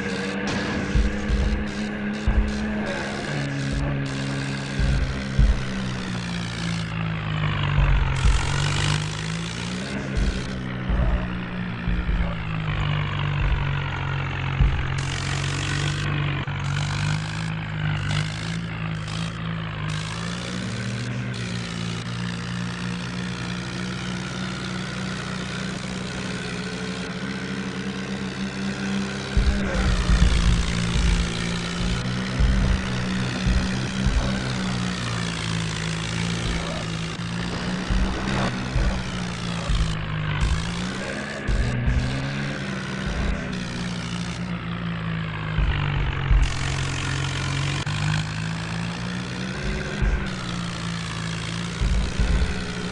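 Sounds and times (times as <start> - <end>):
low thumps: 0.0 - 3.0, 3.6 - 9.2, 10.1 - 16.5, 29.3 - 44.0, 45.5 - 47.3
tractor engine running under load: 0.0 - 52.9.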